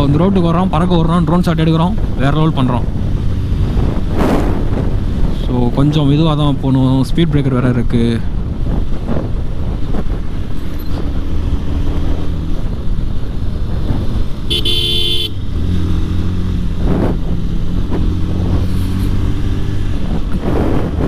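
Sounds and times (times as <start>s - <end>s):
horn toot: 14.5s - 15.5s.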